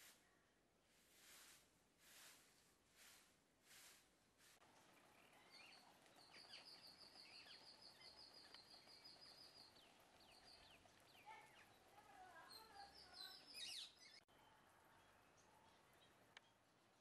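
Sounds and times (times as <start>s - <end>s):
faint bird chirps and calls: 4.7s - 17.0s.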